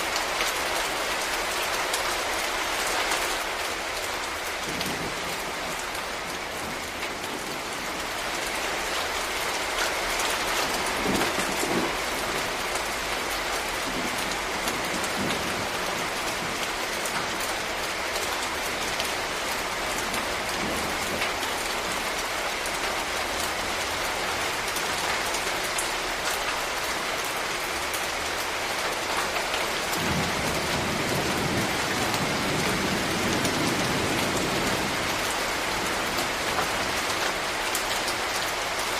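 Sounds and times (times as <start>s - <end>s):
heavy rain on leaves: 0.0s - 38.9s.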